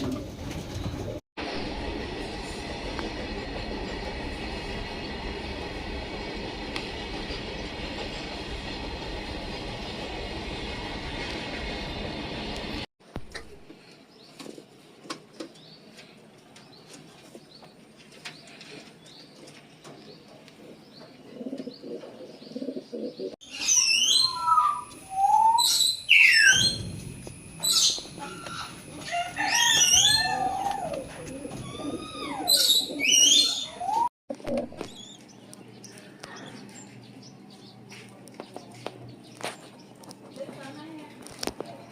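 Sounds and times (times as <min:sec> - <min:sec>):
bird chirps: 0:21.8 - 0:26.9, 0:27.6 - 0:28.8
whistled bird calls: 0:23.4 - 0:26.9, 0:31.6 - 0:34.1
low cooing: 0:30.1 - 0:34.8.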